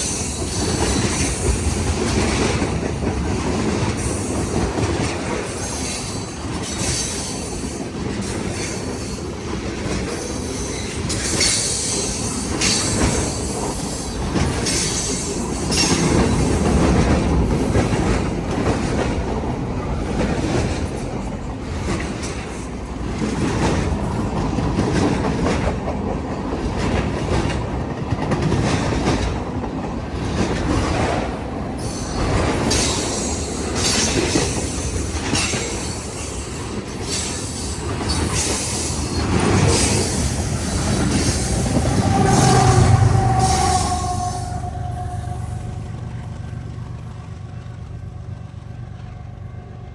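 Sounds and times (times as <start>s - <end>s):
wheels clacking over rail joints: 0.0s - 49.1s
train wheels rumbling on rails: 0.0s - 49.9s
high-pitched wheel squeal: 41.2s - 45.9s.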